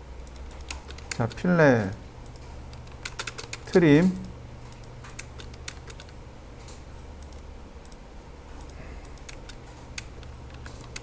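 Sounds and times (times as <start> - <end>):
mouse and keyboard clicks: 8.6 - 11.0.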